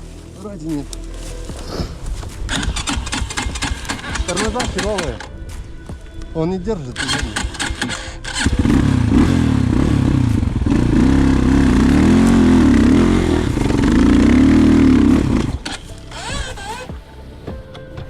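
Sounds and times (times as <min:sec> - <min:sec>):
motorcycle engine revving under load: 0:02.5 - 0:05.4, 0:06.9 - 0:16.9.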